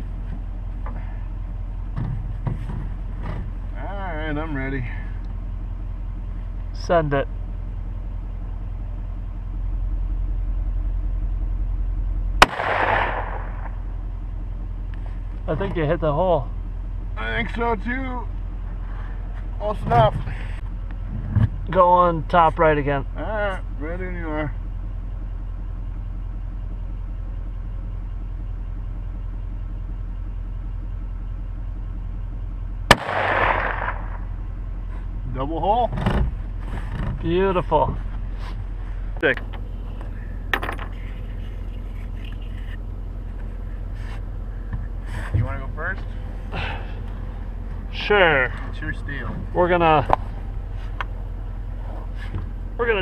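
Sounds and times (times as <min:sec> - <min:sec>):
steady low rumble: 0:00.0 - 0:53.0
rifle shot with echo: 0:12.4 - 0:13.9, 0:32.9 - 0:34.4.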